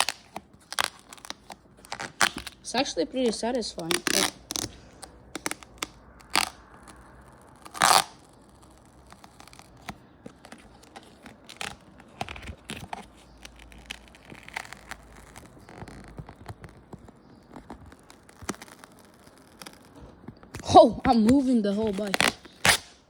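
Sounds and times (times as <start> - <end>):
decal peeling crackles: 0.0 - 23.0
decal tearing rip: 0.0 - 23.0.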